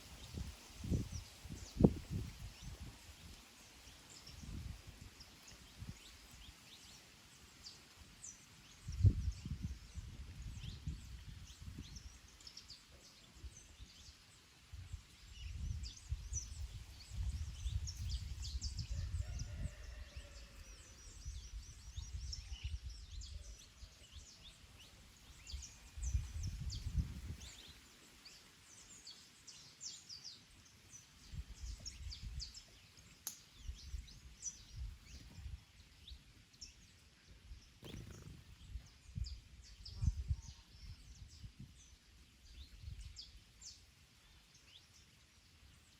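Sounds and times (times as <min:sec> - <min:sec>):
wind rumbling on microphone: 0:00.0 - 0:03.4, 0:04.2 - 0:06.4, 0:08.7 - 0:27.8, 0:31.2 - 0:43.6
small birds chirping and singing: 0:00.0 - 0:45.9.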